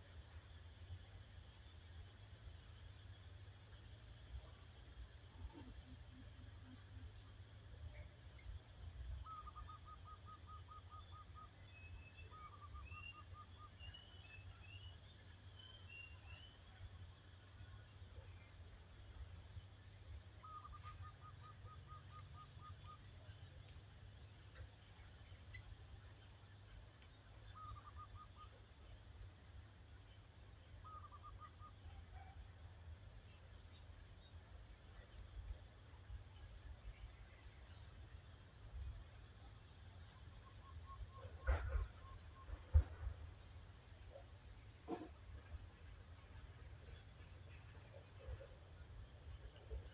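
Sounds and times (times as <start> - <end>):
distant bird calling: 9.2 - 14.9, 20.4 - 23.3, 27.4 - 28.6, 30.8 - 32.3.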